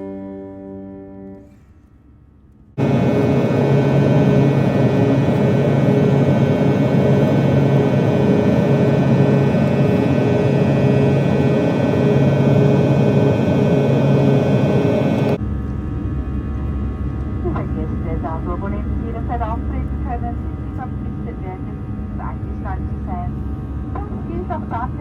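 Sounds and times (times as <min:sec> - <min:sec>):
airliner cabin noise: 0:02.7 - 0:25.0.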